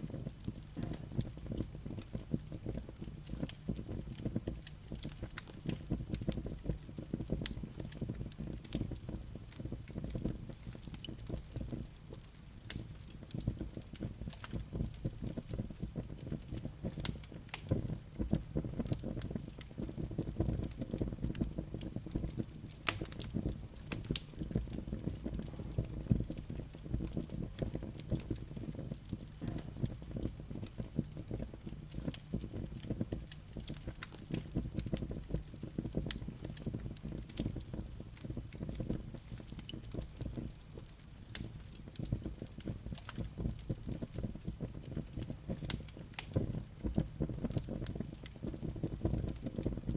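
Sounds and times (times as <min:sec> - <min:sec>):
fire crackling and popping: 0:00.0 - 0:49.9
fire flames rushing: 0:16.4 - 0:49.9.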